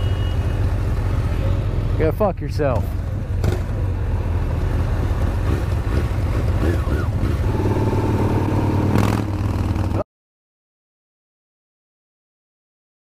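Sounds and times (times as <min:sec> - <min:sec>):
motorcycle engines pulling away: 0:02.9 - 0:10.0.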